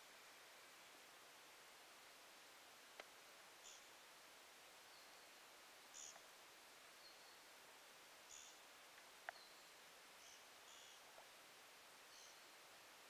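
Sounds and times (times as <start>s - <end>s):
faint hiss: 0.0s - 13.0s
faint click: 2.9s - 3.2s, 6.0s - 6.3s, 9.0s - 9.4s
bird chirps: 9.3s - 11.0s.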